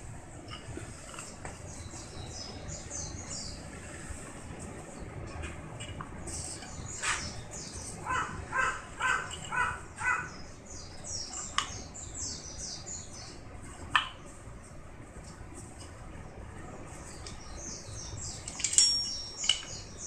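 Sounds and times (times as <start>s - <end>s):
small birds chirping: 1.2s - 14.9s, 16.8s - 20.0s
harsh bird calls: 6.4s - 14.3s.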